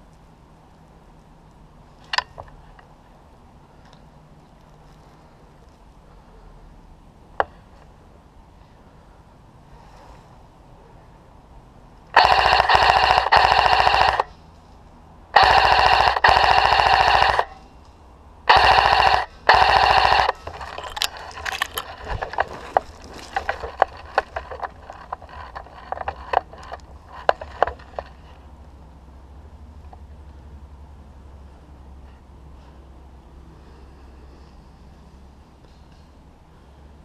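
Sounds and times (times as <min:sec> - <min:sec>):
airsoft gun firing full-auto: 0:12.1 - 0:14.3, 0:15.4 - 0:17.6, 0:18.5 - 0:20.5
whine under gunshots: 0:12.1 - 0:14.3, 0:15.4 - 0:17.6, 0:18.5 - 0:20.7
sharp clicks and cracks: 0:15.4 - 0:28.4.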